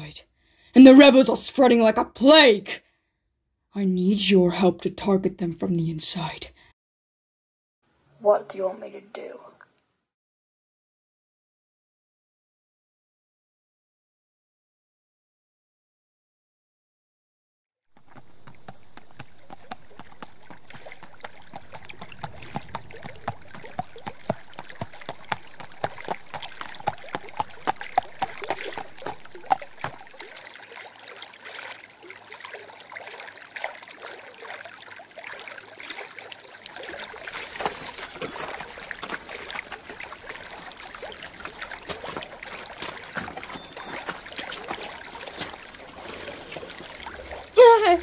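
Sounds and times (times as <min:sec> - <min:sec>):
horse hooves on gravel: 0:17.9 - 0:30.4, 0:36.9 - 0:47.4
stream trickling over rocks: 0:18.0 - 0:48.0.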